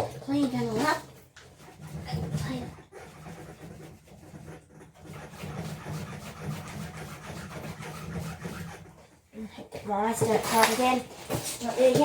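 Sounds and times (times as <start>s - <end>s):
scratchy scraping on metal: 0.0s - 9.2s.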